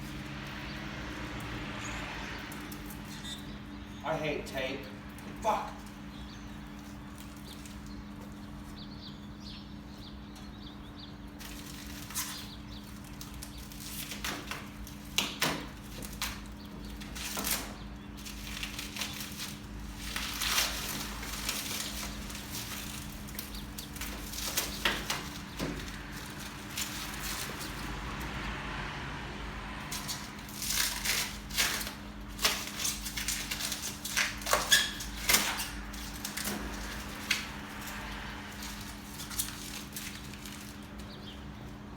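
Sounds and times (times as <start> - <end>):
packaging rustling: 29.9 - 41.1.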